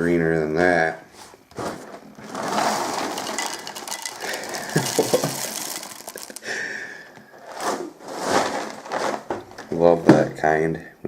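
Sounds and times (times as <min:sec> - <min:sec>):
cereal pouring into a bowl: 0:01.1 - 0:09.3.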